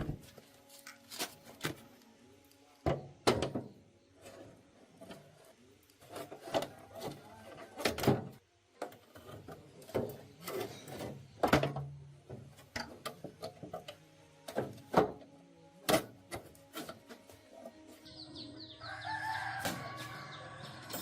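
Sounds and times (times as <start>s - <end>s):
tools knocking and clunking: 2.8s - 3.8s, 6.1s - 17.8s.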